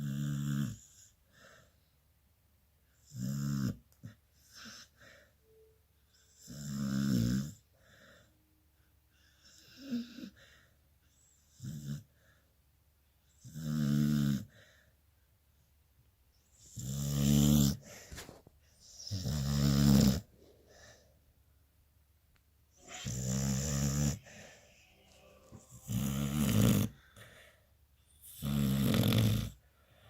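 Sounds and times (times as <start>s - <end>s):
dog snoring: 0.0s - 1.2s, 3.0s - 4.9s, 6.2s - 7.7s, 9.2s - 10.4s, 11.1s - 12.2s, 13.3s - 14.6s, 16.5s - 20.3s, 22.8s - 24.6s, 25.6s - 27.3s, 28.2s - 29.6s
dog snorting and breathing: 16.6s - 20.3s, 22.8s - 24.6s, 25.8s - 27.3s, 28.2s - 29.6s.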